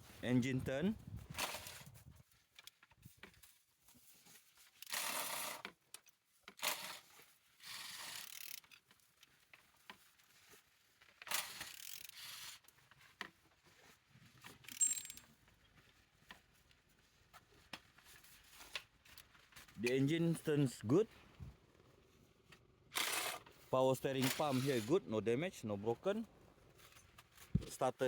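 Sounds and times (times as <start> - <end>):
ratchet wrench clicking: 11.6 - 12.2.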